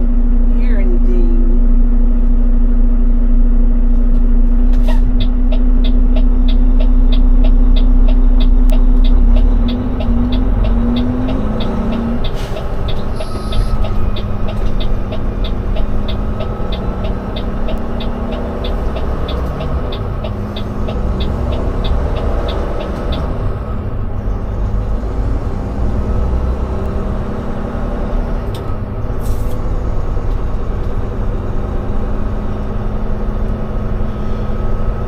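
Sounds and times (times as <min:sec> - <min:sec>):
diesel engine droning: 0:00.0 - 0:35.0
turn signal ticking: 0:04.7 - 0:23.9.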